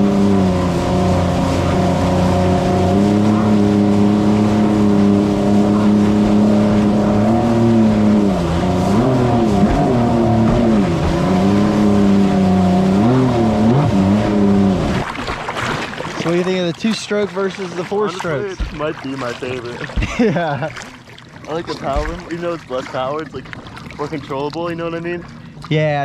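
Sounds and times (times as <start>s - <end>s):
jet ski engine running: 0.0s - 26.0s.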